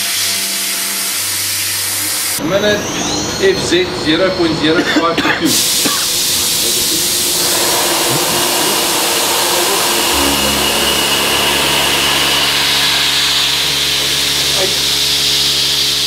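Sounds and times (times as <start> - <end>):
machine hiss: 5.5 - 16.0
low multi-tone milling hum: 6.2 - 16.0.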